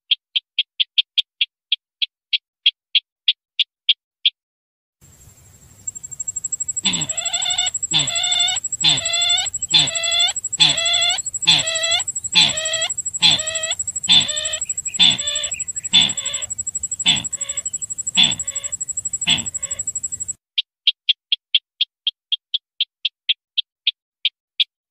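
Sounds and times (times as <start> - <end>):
thin steady high whine: 5.1 - 20.4
rough ringing bird call: 5.9 - 20.4.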